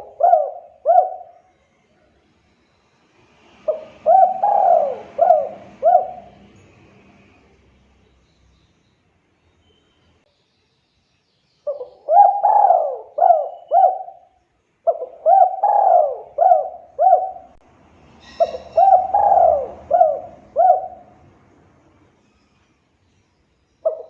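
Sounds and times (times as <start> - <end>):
dove cooing: 0.0 - 1.5, 3.6 - 6.6, 11.7 - 17.6, 18.3 - 21.3.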